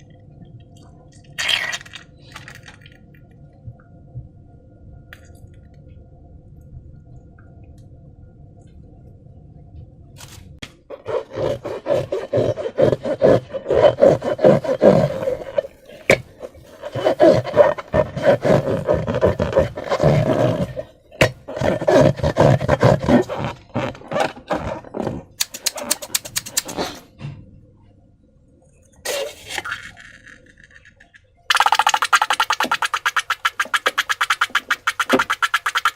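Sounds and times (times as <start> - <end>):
slime squelching and crackling: 11.0 - 26.8, 31.5 - 35.9.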